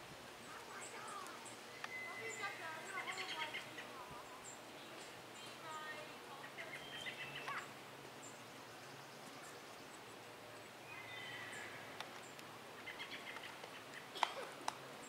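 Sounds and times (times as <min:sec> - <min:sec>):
faint bird calls: 0:00.4 - 0:15.0.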